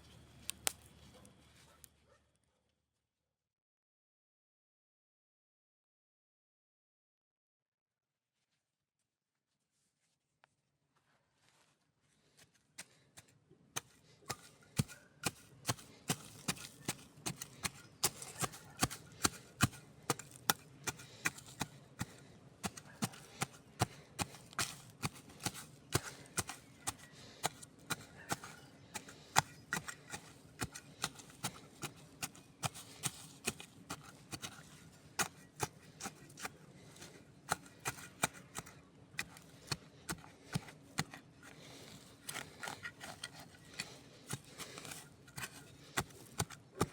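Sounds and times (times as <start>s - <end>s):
campfire crackling: 0.4s - 1.0s.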